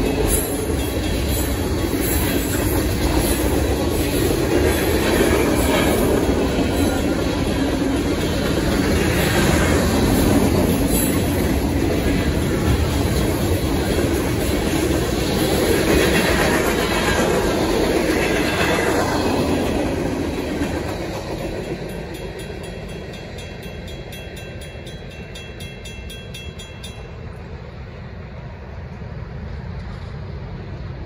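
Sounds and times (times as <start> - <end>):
crossing bells ringing: 0.0 - 2.8, 5.6 - 12.0, 21.4 - 27.7.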